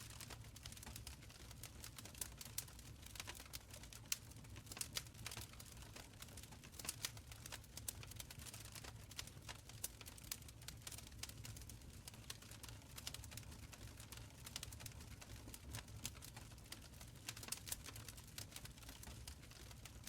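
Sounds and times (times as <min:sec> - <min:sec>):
fire crackling and popping: 0:00.0 - 0:20.0
low rumble of fire: 0:00.0 - 0:20.0.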